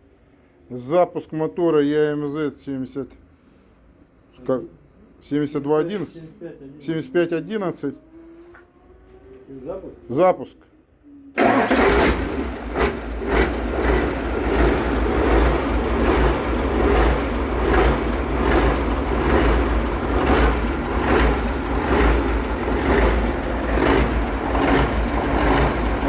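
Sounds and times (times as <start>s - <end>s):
diesel engine running with pulsing: 11.4s - 26.0s.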